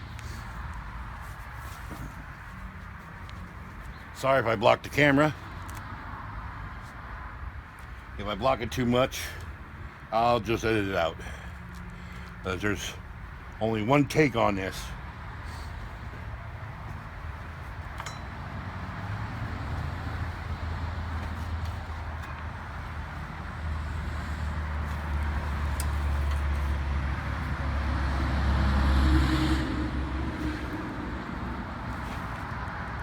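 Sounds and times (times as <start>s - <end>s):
vehicle passing on road: 14.6s - 33.0s.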